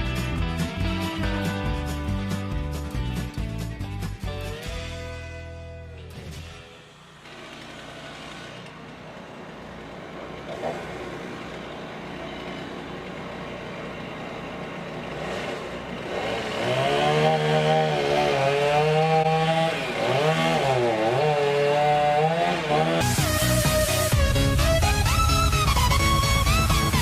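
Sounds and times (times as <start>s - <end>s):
chainsaw cutting under load: 6.2s - 24.8s.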